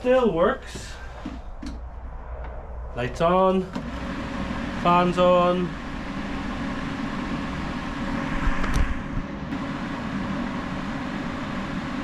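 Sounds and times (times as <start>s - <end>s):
space heater fan running: 3.0s - 12.0s.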